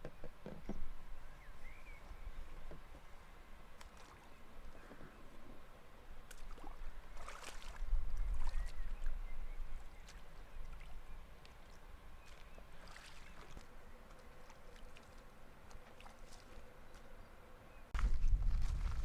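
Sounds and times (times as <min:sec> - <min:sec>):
paddle splashing in water: 0:03.8 - 0:05.1, 0:06.3 - 0:09.1, 0:09.8 - 0:17.1.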